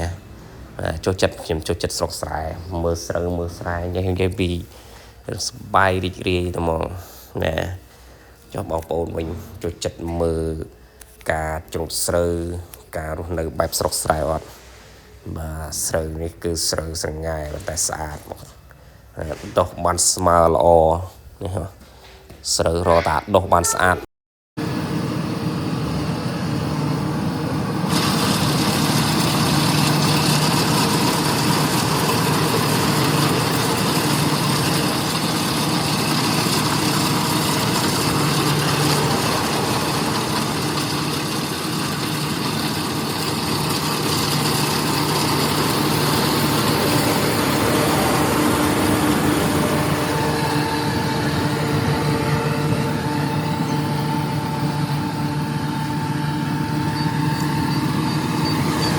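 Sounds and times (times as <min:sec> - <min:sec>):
combine harvester running: 0:00.0 - 0:01.0, 0:24.6 - 0:58.9.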